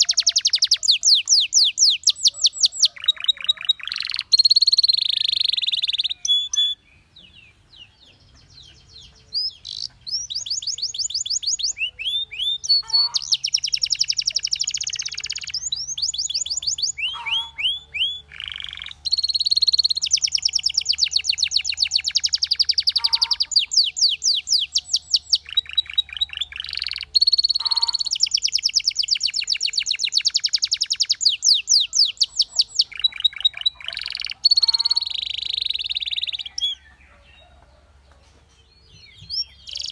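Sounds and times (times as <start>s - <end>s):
canary singing trills: 0.0s - 38.0s, 38.6s - 39.9s.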